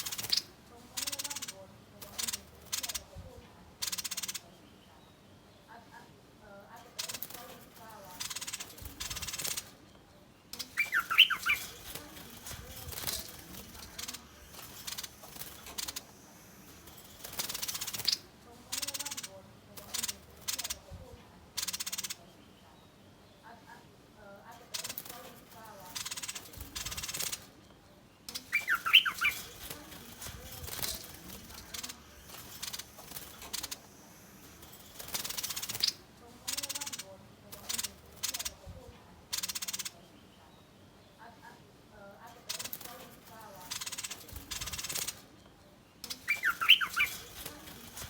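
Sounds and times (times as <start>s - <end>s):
harsh rasping bird calls: 0.0s - 5.6s, 6.8s - 23.2s, 24.6s - 27.6s, 28.2s - 40.4s, 42.3s - 48.0s
faint clicks and rustles: 6.6s - 22.6s, 24.4s - 39.9s, 42.2s - 48.0s
bird chirping sharply: 10.6s - 12.5s, 28.3s - 29.8s, 46.1s - 47.4s.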